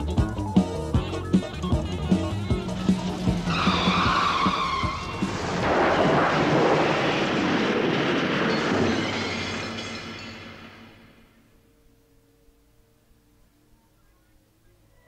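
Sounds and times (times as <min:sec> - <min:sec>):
band music: 0:00.0 - 0:05.4
tyre squeal screech: 0:03.3 - 0:05.6.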